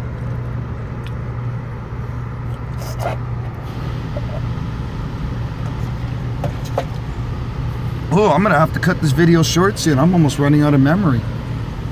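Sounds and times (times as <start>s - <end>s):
car wash hum and spray: 3.1s - 11.9s.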